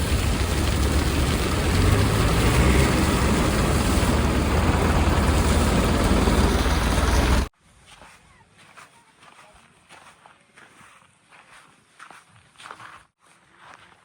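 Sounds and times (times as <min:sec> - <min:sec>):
diesel engine running: 0:00.0 - 0:07.5.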